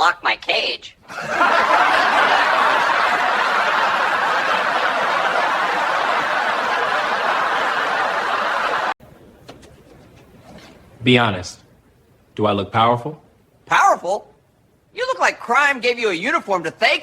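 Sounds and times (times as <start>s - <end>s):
crowd laughing: 1.1s - 9.0s.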